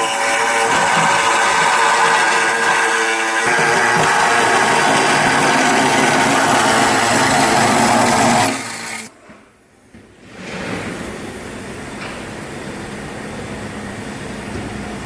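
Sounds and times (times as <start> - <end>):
power tool on metal: 0.0 - 9.1.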